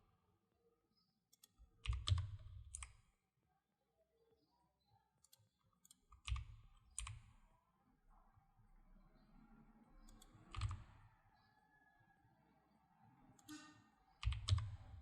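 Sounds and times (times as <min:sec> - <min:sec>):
mouse and keyboard clicks: 0:10.0 - 0:10.9.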